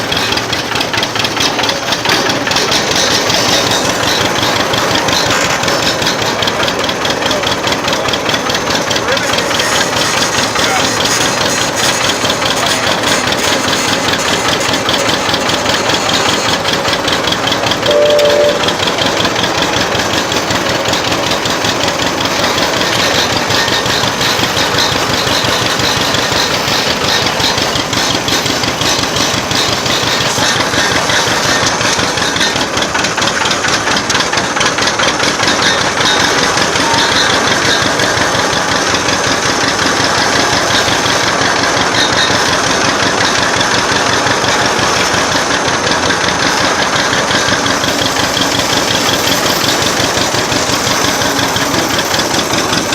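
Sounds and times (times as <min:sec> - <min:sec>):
old tractor engine running: 0:00.0 - 0:52.9
short tone: 0:17.8 - 0:19.0.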